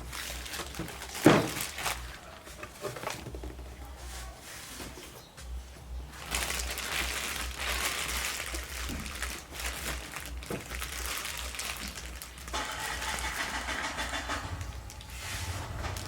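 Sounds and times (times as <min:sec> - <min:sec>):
packaging crinkling and rustling: 0:00.0 - 0:03.8, 0:06.1 - 0:13.4
low rumble: 0:14.0 - 0:16.0.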